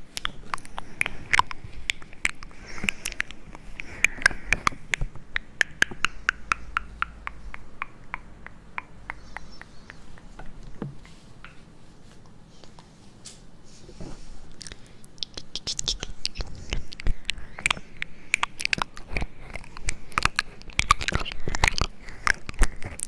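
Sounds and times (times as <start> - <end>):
sharp clicks and taps: 0.1 - 11.6.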